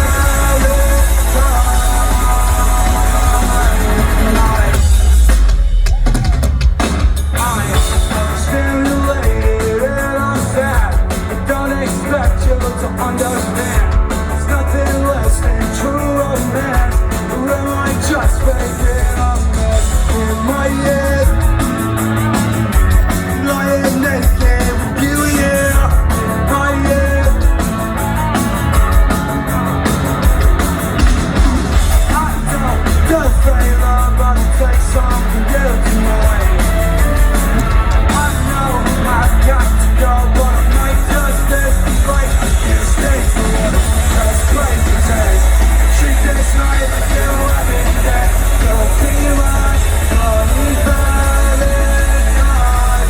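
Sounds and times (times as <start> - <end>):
person singing: 0.0 - 6.5, 7.3 - 53.0
pop-punk rock band playing: 0.0 - 53.0.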